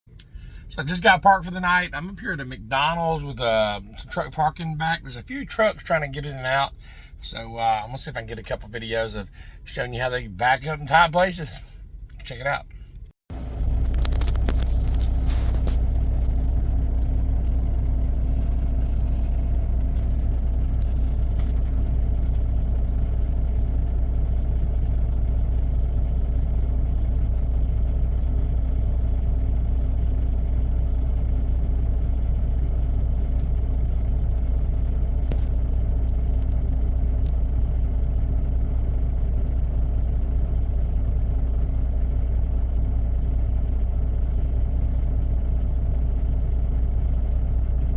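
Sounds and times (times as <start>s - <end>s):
diesel truck engine idling: 0.1s - 47.9s.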